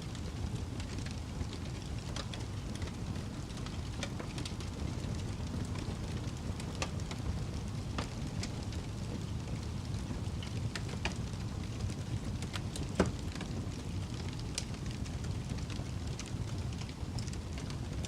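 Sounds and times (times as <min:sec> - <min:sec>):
fire crackling and popping: 0:00.0 - 0:18.0.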